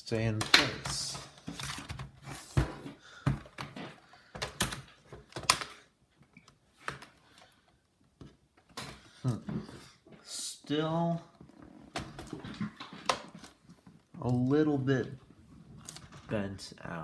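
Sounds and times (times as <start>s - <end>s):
screwdriver and plastic parts clicking: 3.6s - 5.8s.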